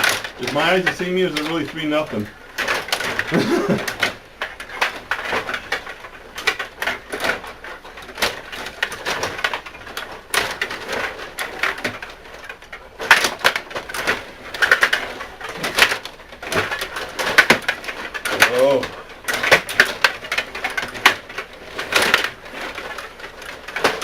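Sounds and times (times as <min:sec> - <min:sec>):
plastic clicks and rattles of rod hockey: 0:00.0 - 0:24.0.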